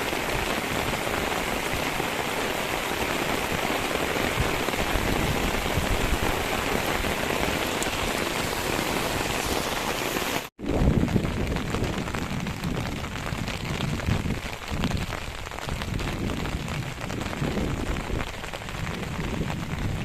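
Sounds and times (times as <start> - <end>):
water rushing: 0.0 - 10.5.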